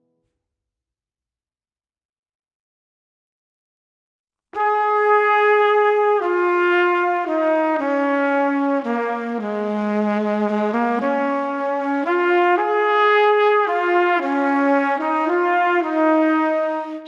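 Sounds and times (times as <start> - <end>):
slow brass solo melody: 4.6 - 17.0.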